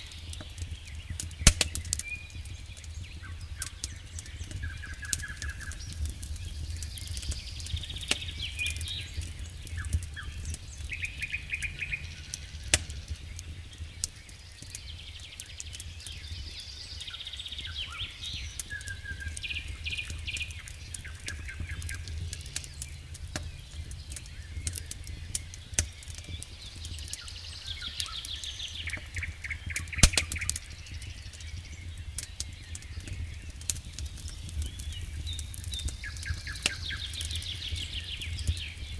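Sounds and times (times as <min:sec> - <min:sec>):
birds singing: 0:00.0 - 0:38.9
campfire crackling and popping: 0:00.0 - 0:38.9
low rumble: 0:09.4 - 0:13.9.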